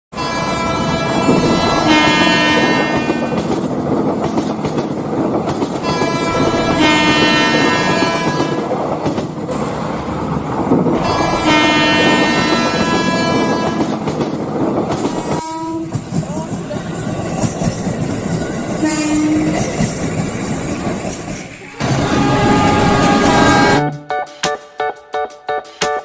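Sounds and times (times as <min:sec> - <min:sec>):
train horn blasts: 0:00.1 - 0:03.4, 0:05.8 - 0:08.7, 0:11.0 - 0:13.9, 0:15.3 - 0:16.0, 0:18.8 - 0:19.6, 0:21.8 - 0:23.9
train rumbling: 0:00.1 - 0:24.0.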